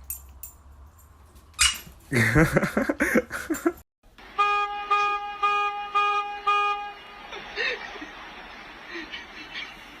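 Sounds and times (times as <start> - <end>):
horn honking in pulses: 4.3 - 7.3.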